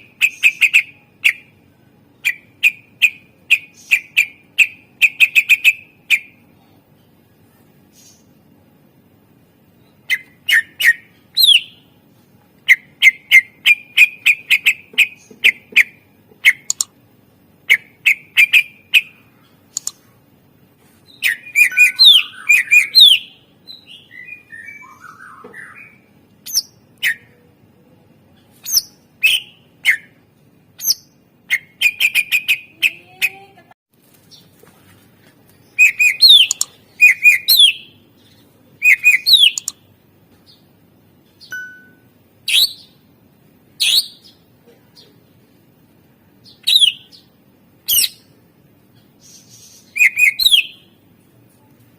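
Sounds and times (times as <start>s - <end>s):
bird singing chirps and trills: 0.0s - 6.4s, 9.8s - 11.9s, 21.1s - 27.4s, 35.7s - 39.8s, 41.3s - 43.1s, 46.4s - 48.3s, 48.9s - 51.0s.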